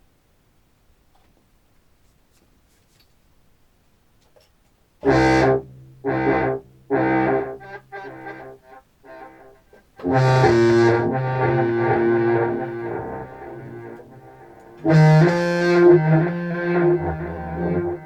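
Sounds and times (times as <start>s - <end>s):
clarinet with delay effect: 5.1s - 18.0s.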